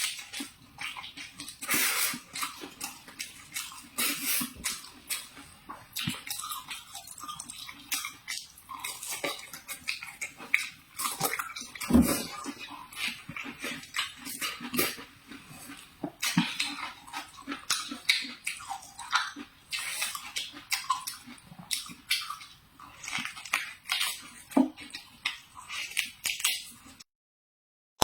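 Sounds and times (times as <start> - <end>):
person chewing crunchy food: 0.0 - 27.0.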